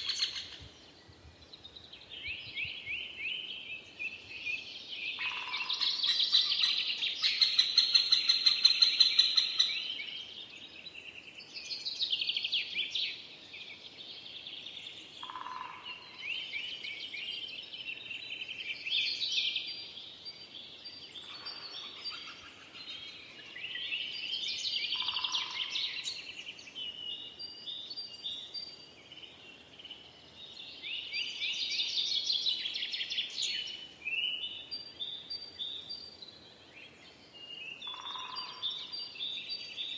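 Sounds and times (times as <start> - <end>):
songbirds trilling: 21.2 - 27.0.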